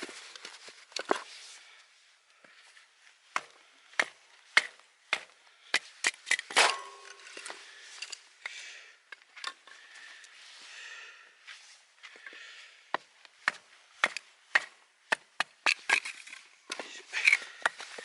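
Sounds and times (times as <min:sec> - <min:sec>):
rustling and scraping: 0:00.0 - 0:01.8, 0:15.6 - 0:18.0.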